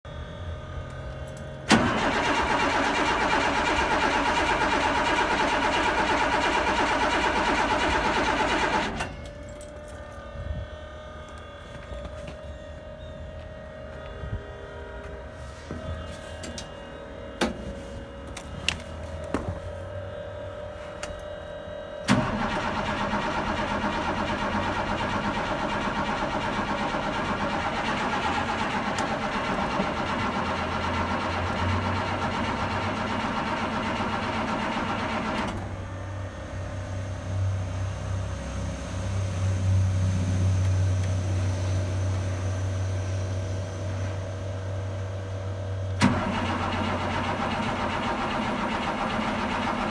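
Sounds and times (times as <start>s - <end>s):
diesel truck engine starting: 0.6s - 9.8s, 22.0s - 49.9s.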